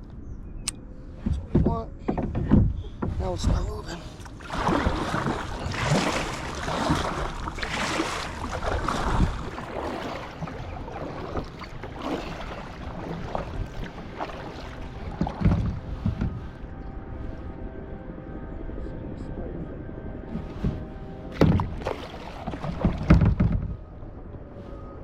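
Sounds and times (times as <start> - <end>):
wind on microphone: 2.5 - 11.7
kayak paddle splashing: 3.5 - 16.8, 20.3 - 23.8
low knocks: 10.4 - 16.6, 22.5 - 23.9.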